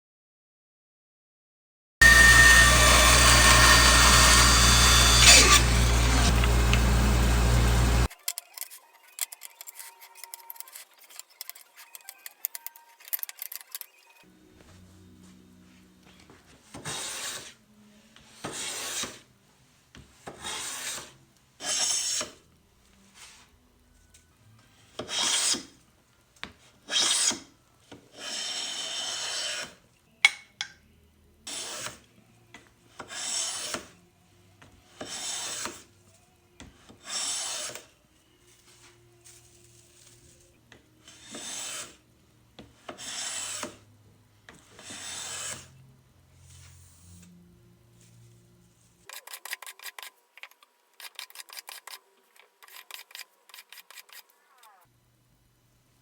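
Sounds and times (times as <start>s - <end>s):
hand plane shaving wood: 2.0s - 8.1s, 16.7s - 17.6s, 18.4s - 19.3s, 20.2s - 22.4s, 25.0s - 25.7s, 26.9s - 27.4s, 28.2s - 29.8s, 31.5s - 32.0s, 33.0s - 33.9s, 34.9s - 35.9s, 36.8s - 37.9s, 41.1s - 42.0s, 42.9s - 43.8s, 44.6s - 45.8s.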